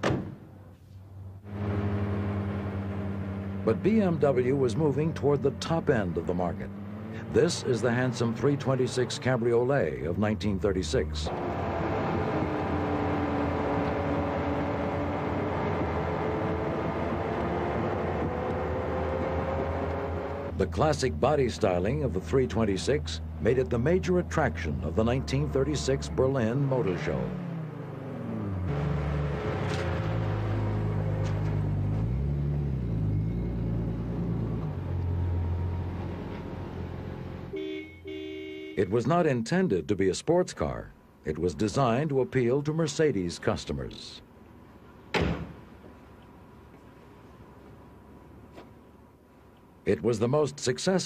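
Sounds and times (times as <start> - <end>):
road noise: 0.0 - 51.0
car engine running: 1.2 - 37.6
car horn toots: 37.5 - 39.0.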